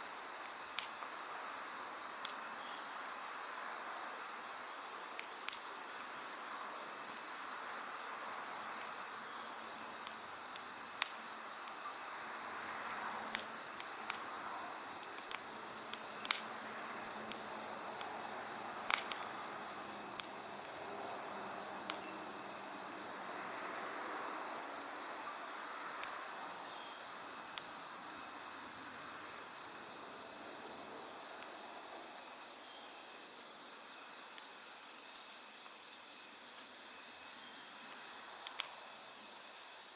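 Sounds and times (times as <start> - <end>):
night insects trilling: 0.0 - 39.9
wood fire hissing: 0.0 - 39.9
burning wood popping and crackling: 0.7 - 1.2, 5.0 - 5.8, 8.6 - 11.8, 12.5 - 22.5.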